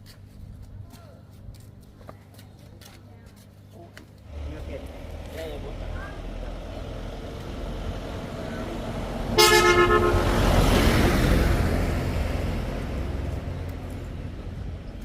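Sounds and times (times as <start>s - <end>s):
vehicle passing by: 4.3s - 15.0s
vehicle horn toot: 9.3s - 10.9s.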